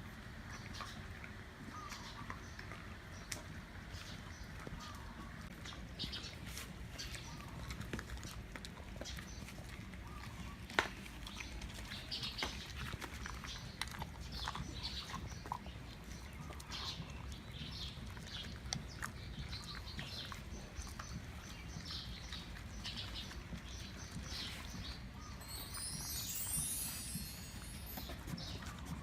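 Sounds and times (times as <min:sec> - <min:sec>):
dogs chewing with crunches: 0:00.0 - 0:29.0.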